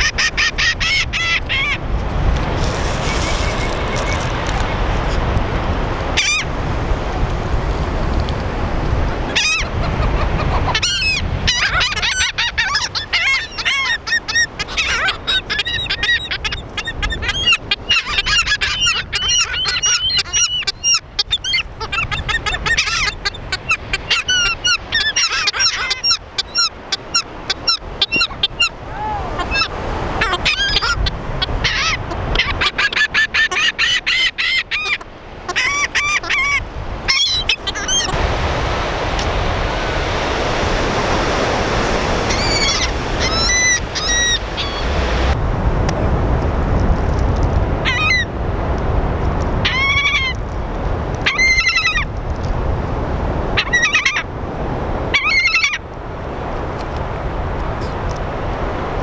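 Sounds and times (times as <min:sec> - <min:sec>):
gulls squawking: 0:00.0 - 0:06.5, 0:09.1 - 0:45.4
low rushing noise: 0:38.1 - 0:47.8.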